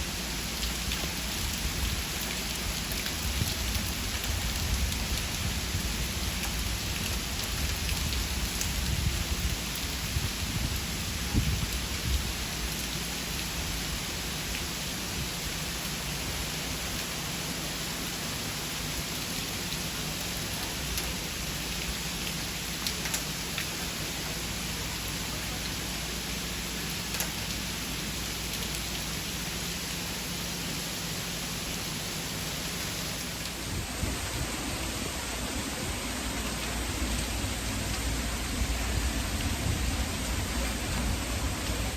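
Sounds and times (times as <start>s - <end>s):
water rushing: 23.4s - 41.9s.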